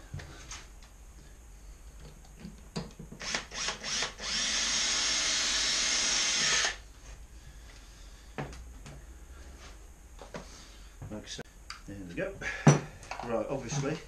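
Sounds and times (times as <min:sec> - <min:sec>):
electric drill drilling metal: 0:03.2 - 0:06.8.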